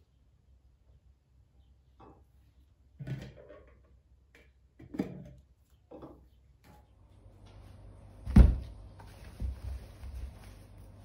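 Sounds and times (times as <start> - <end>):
loud thump: 8.3 - 8.7.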